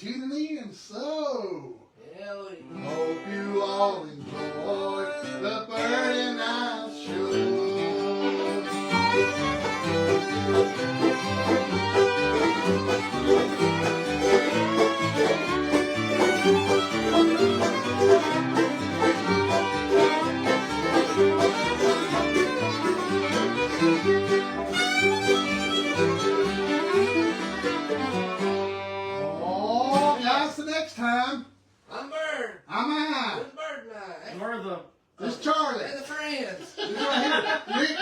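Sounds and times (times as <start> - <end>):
fiddle melody: 2.7 - 3.6, 4.3 - 30.2
strummed guitar: 4.2 - 30.3
banjo: 5.8 - 30.2.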